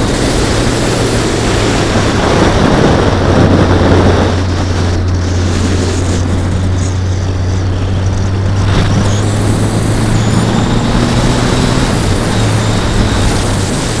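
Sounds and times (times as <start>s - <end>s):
motorcycle engine running: 0.0s - 14.0s
wind noise on microphone: 0.0s - 14.0s.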